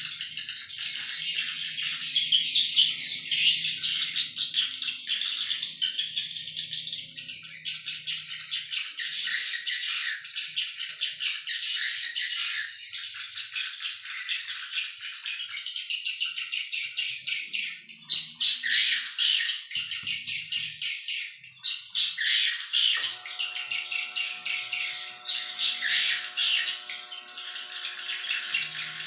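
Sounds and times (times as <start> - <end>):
swiftlets twittering and chirping: 0.0 - 29.0
steady multi-tone hum: 23.0 - 29.0.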